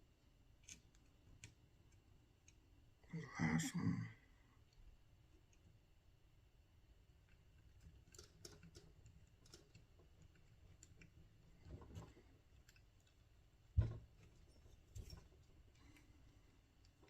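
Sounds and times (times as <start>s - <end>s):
dull thump: 13.8s - 14.1s.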